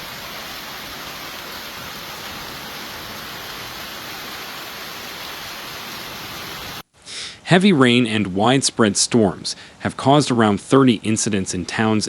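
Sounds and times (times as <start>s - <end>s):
water rushing: 0.0s - 6.8s.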